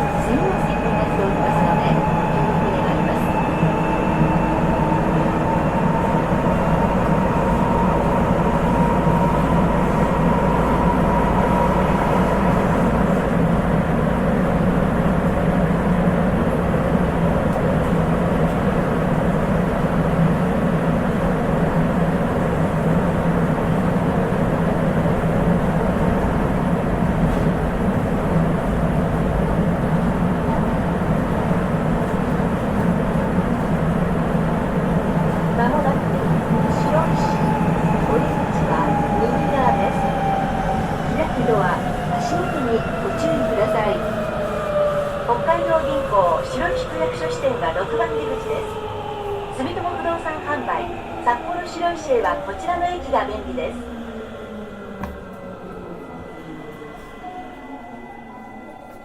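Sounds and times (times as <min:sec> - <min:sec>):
train running gear rumble: 0:53.9 - 0:56.1.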